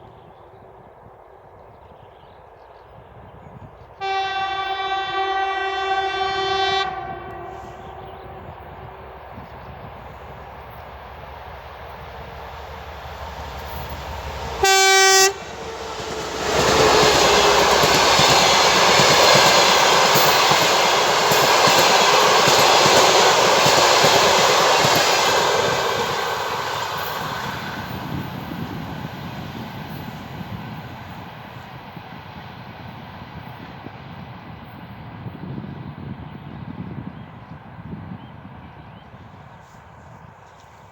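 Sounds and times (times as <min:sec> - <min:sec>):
train horn blast: 0:04.0 - 0:09.1, 0:14.5 - 0:15.8
diesel locomotive rumble: 0:04.4 - 0:38.2
train wheels clickety-clack: 0:09.4 - 0:34.8.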